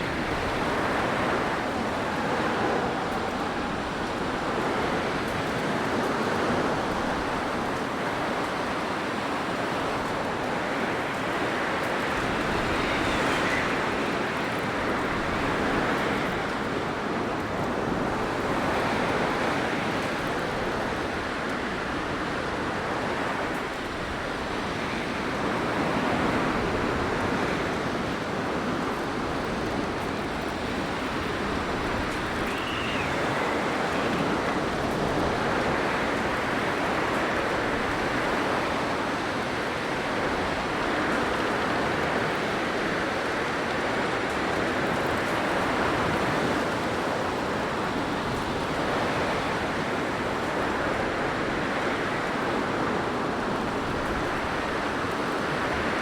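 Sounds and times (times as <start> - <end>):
faint wind whistle: 0.0 - 7.6, 10.2 - 27.7, 30.2 - 43.0
blizzard wind rushing: 0.0 - 56.0.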